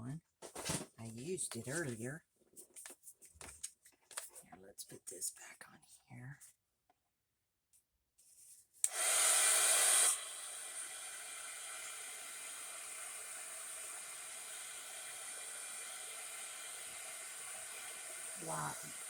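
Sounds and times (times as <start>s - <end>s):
craft dryer blowing air: 8.8s - 19.0s.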